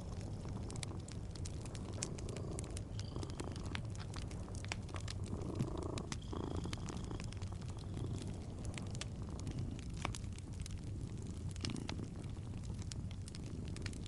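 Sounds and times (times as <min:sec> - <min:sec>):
cat purring: 0:00.0 - 0:14.0
wood fire crackling: 0:00.0 - 0:14.0.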